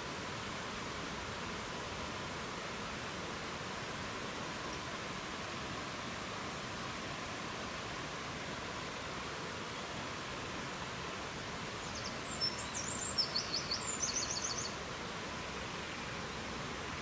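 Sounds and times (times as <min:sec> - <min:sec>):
rushing forest ambience: 0:00.0 - 0:17.0
songbird singing: 0:11.8 - 0:14.8.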